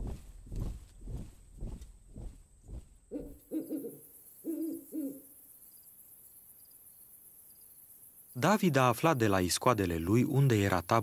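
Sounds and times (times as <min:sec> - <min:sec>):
marching footsteps: 0:00.0 - 0:03.4
crickets chirping: 0:00.0 - 0:11.0
owl hooting: 0:03.1 - 0:05.4.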